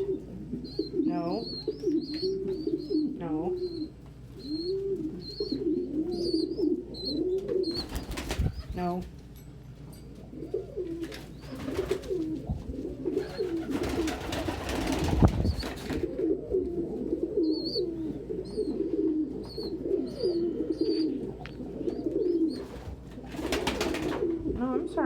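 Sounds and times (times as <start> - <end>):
pigeons cooing: 0.0 - 9.2, 10.1 - 25.0
rustling noise: 11.0 - 13.4.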